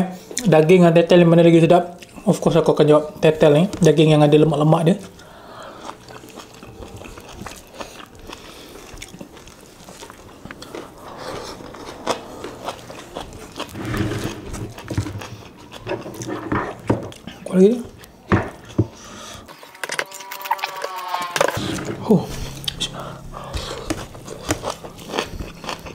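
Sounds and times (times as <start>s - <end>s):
wet chewing and lip smacks: 5.0s - 13.7s
low voice hum: 21.6s - 24.6s.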